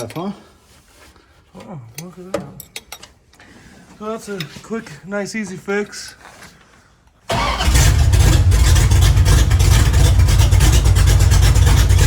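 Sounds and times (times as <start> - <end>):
pickup truck engine running: 7.3 - 12.0.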